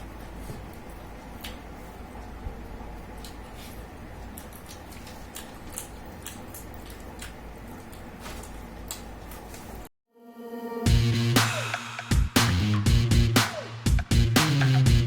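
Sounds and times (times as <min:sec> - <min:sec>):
low room hum: 0:00.0 - 0:09.9
chewing and biting: 0:03.1 - 0:09.7.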